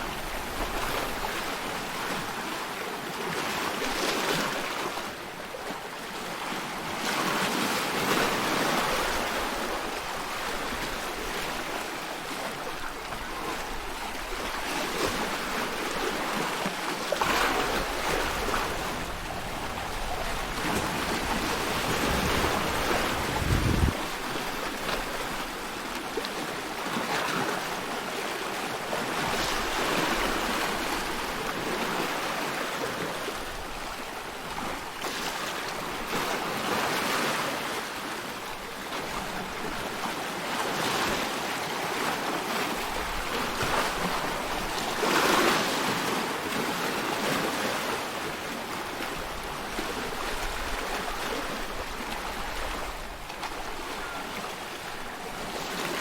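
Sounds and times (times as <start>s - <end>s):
ocean waves washing in: 14.2s - 34.0s.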